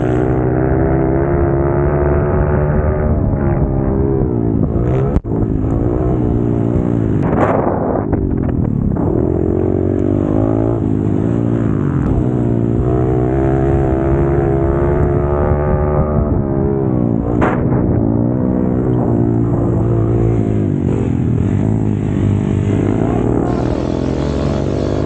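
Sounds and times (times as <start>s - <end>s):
pit bike engine revving: 0.0s - 25.0s.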